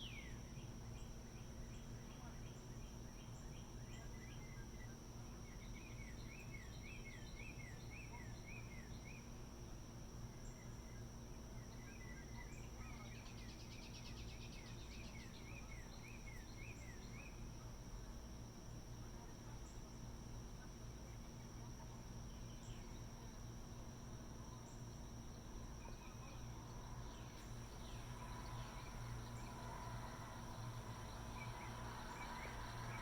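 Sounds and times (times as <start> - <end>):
distant machinery hum: 19.0 - 33.0
high-pitched insect drone: 24.4 - 33.0.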